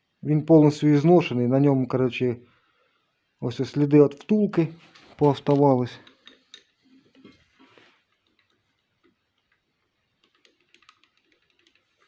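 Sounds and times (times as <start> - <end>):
faint metal clicks and ticks: 4.9 - 12.0.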